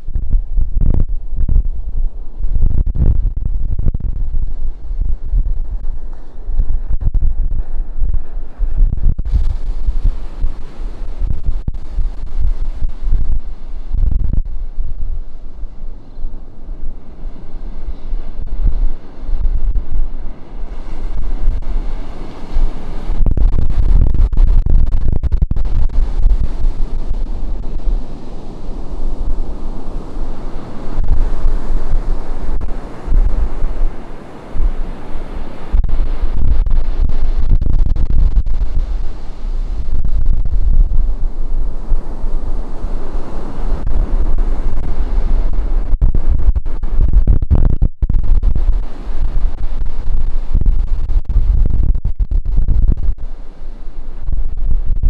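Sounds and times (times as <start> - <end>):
ocean surf washing in: 0.0 - 24.9, 25.6 - 47.4, 48.1 - 55.0
wind buffeting microphone: 0.0 - 55.0.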